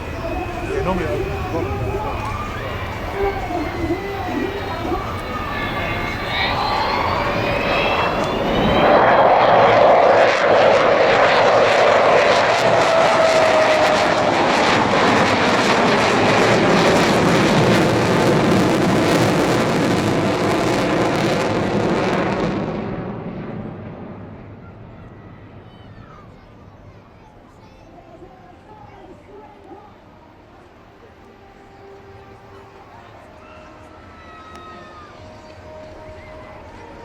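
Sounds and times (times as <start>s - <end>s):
jet aircraft flyby: 0.0s - 27.2s.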